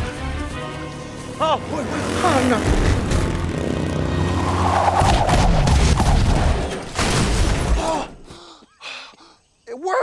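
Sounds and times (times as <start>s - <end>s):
crashing impacts: 1.6s - 8.3s
rapid gunshots: 1.7s - 8.1s.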